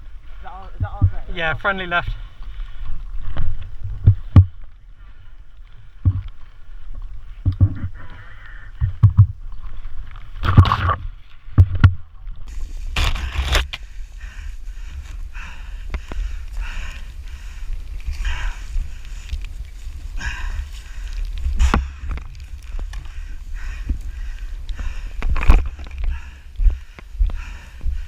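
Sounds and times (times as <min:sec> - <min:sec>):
footsteps: 0:00.4 - 0:13.8.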